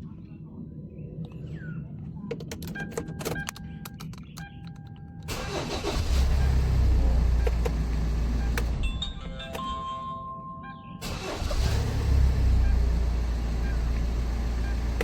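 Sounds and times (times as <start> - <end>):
clicks and beeps: 2.3 - 5.3
car engine starting: 5.3 - 9.2, 11.0 - 15.0.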